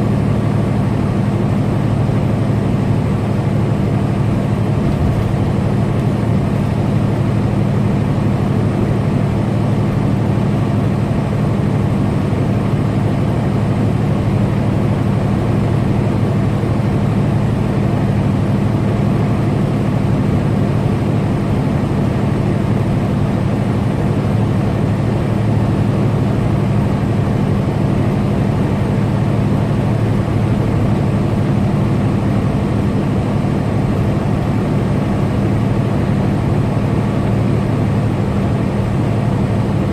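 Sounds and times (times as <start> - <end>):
truck diesel engine drone: 0.0 - 39.9
road noise: 4.0 - 7.8.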